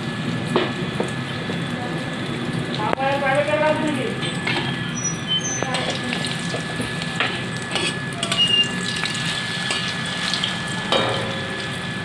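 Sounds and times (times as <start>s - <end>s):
batter sizzling in hot oil: 0.0s - 12.0s
metal spatula scraping pan: 7.7s - 8.6s.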